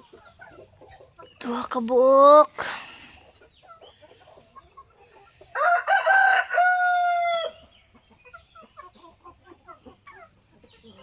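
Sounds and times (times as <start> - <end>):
faint hens clucking: 0.0 - 11.0
rooster crowing: 5.6 - 7.6.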